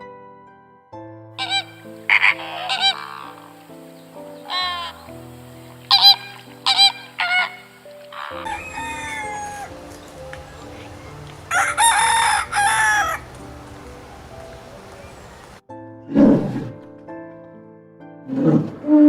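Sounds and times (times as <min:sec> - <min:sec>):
soft background music: 0:00.0 - 0:19.0
rooster crowing: 0:01.4 - 0:03.6, 0:04.3 - 0:05.1, 0:05.9 - 0:15.6.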